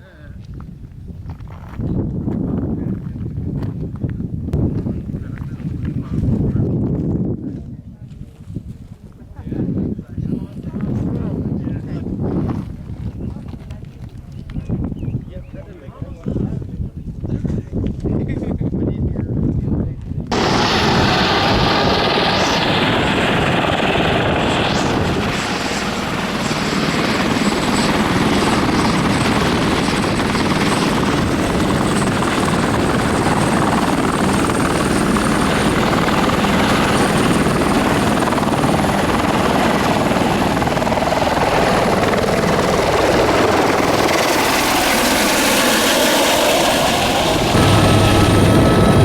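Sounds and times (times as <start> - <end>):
aircraft engine and propeller: 20.3 - 49.0.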